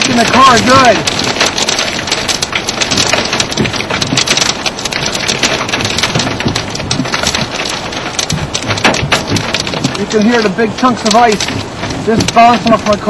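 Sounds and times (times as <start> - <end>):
hail drumming on car roof: 0.0 - 13.0
rain wash: 0.0 - 13.0.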